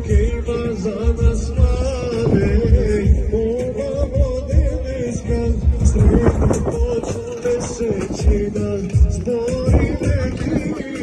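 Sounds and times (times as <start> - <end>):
heavy repeating bass beat: 0.0 - 11.0.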